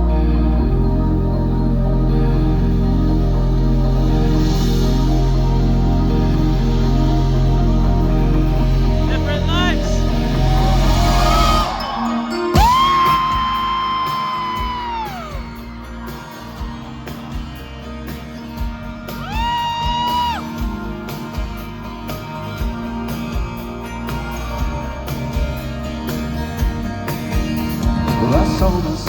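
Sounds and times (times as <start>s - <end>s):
live pop band playing: 0.0s - 29.0s
crowd noise: 9.1s - 22.2s
loud high whoops: 10.1s - 15.7s, 19.2s - 20.6s.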